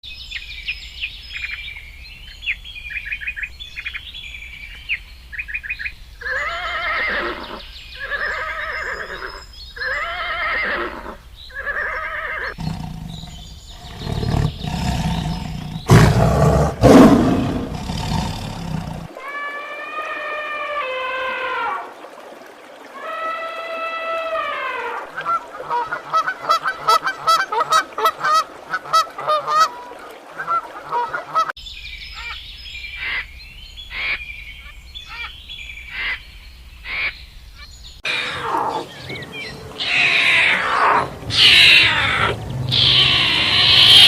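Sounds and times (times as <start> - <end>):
drawn-out arching animal calls: 6.2 - 22.0, 38.0 - 44.0
loud rough roaring: 12.6 - 19.1, 41.0 - 44.0.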